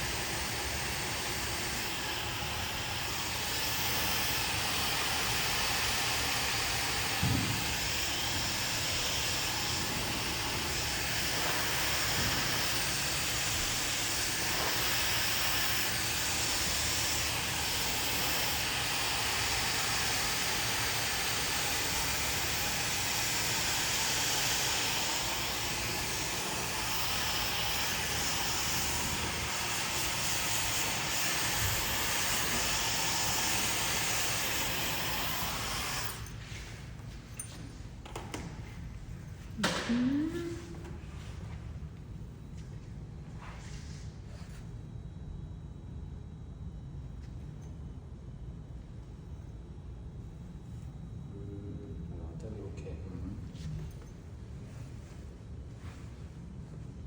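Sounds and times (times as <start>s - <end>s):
hair dryer blowing: 0.0s - 36.4s, 39.6s - 41.0s.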